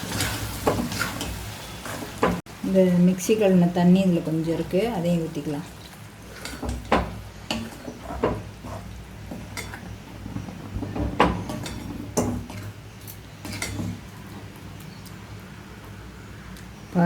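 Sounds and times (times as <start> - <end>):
metal spoon scraping a pan: 0.0 - 2.3, 6.2 - 14.4.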